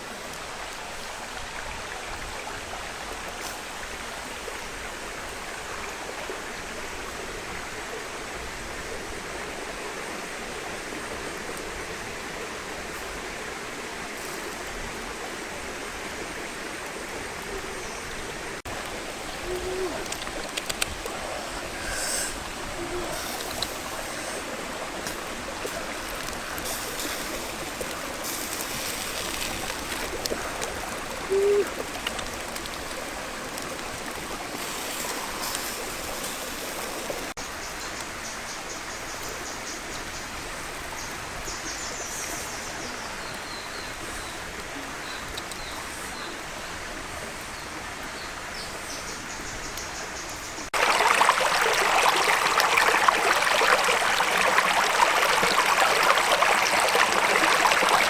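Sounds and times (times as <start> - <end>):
stream water running: 0.0 - 58.0.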